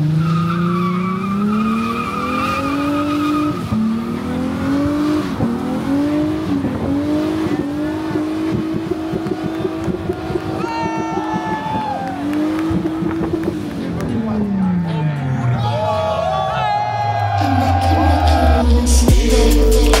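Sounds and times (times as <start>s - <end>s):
car engine revving: 0.0s - 16.1s
engine stuttering crackle: 3.6s - 15.5s.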